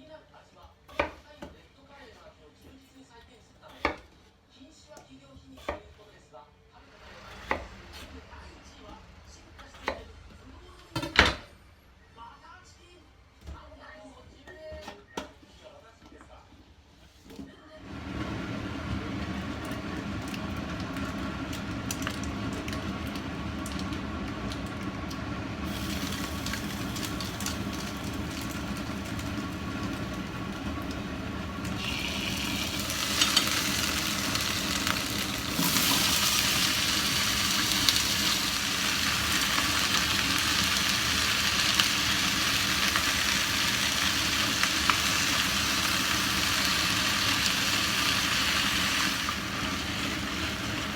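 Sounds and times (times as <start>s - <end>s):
food sizzling in a pan: 17.9s - 50.9s.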